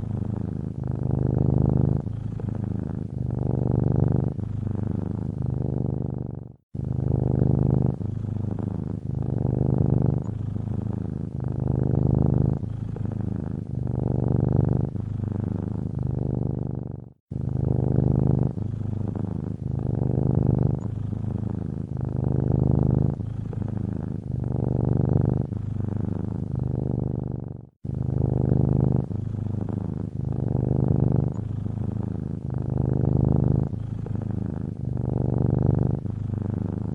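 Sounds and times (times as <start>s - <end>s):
cat purring: 0.0s - 36.9s.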